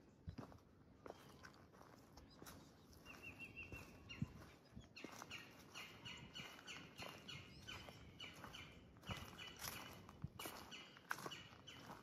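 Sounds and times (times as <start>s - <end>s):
soft footsteps on a trail: 0.0s - 12.0s.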